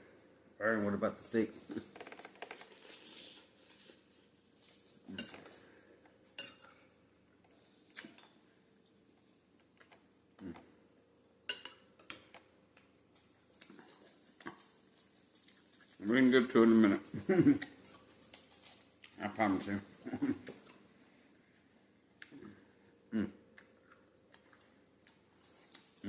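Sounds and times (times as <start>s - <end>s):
utensils clinking against dish: 4.7s - 6.8s.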